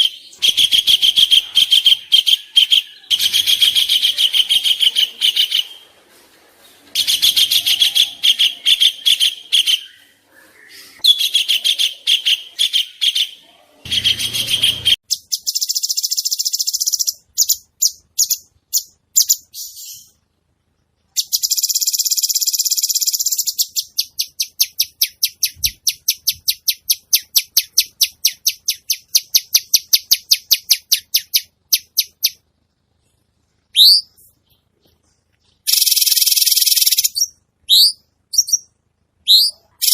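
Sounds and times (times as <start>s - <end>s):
buzzy bird chattering: 0.0s - 5.8s, 7.0s - 10.0s, 10.7s - 20.1s, 35.6s - 38.7s, 39.3s - 39.9s
rapid sharp repeated bird notes: 0.0s - 5.9s, 6.9s - 20.2s, 21.1s - 32.5s, 35.4s - 39.9s.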